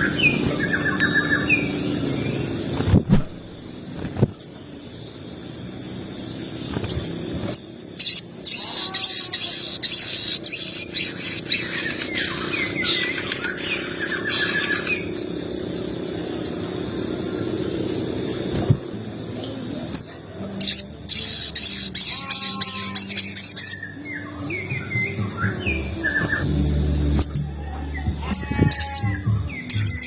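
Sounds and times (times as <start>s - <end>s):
birds chirping: 0.0s - 2.8s, 3.5s - 30.0s
harsh chattering bird calls: 6.3s - 18.4s, 19.9s - 26.4s, 28.0s - 30.0s.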